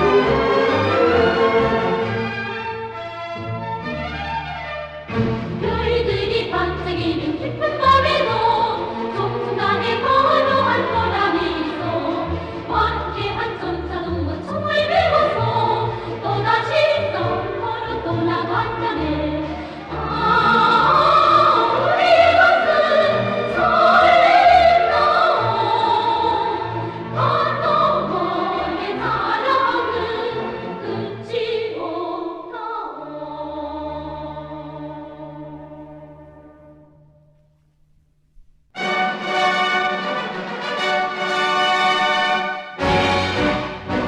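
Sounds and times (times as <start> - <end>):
choir singing: 0.0 - 2.8, 5.2 - 37.0
orchestral accompaniment: 0.0 - 31.4, 38.8 - 44.0.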